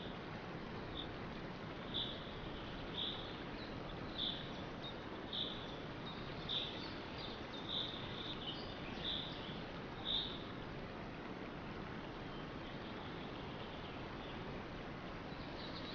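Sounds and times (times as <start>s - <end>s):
background hiss: 0.0s - 15.9s.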